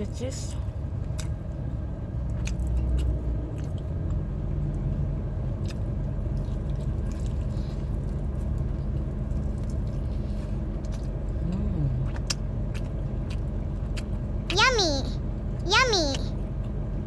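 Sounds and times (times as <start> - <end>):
steady low hum: 0.0 - 17.0
chewing crispy chicken: 0.5 - 14.6.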